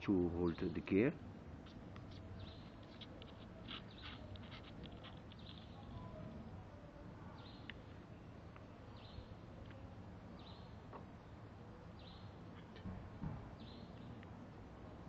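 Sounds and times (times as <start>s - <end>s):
faint bird chirping: 0.1s - 15.0s
soft knock: 12.8s - 13.5s.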